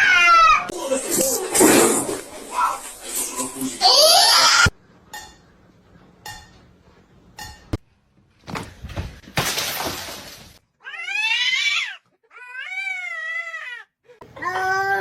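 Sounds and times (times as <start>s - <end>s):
object falling and breaking: 8.4s - 10.6s.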